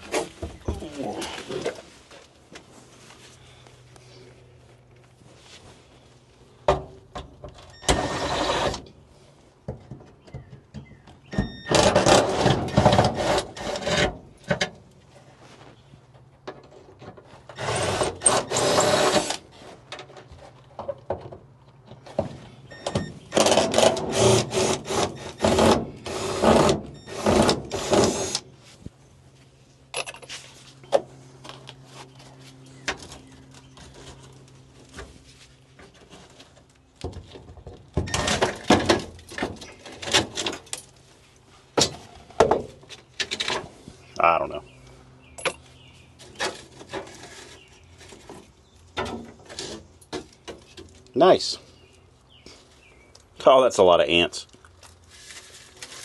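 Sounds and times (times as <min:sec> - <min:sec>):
rattling and scraping of car parts: 0:00.0 - 0:53.4.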